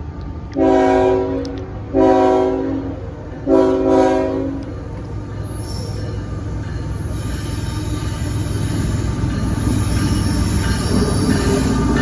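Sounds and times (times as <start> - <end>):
train low rumble: 0.0 - 12.0
locomotive air horn blasts: 0.6 - 4.6.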